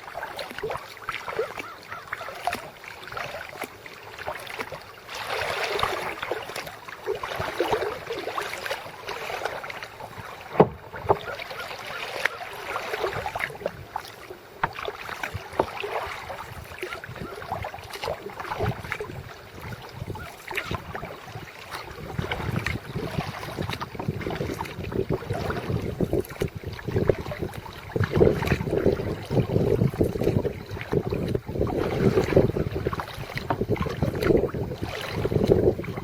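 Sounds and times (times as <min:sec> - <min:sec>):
paddle splashing water: 0:00.0 - 0:36.0
water lapping at hull: 0:00.0 - 0:36.0
wind noise on microphone: 0:16.2 - 0:36.0.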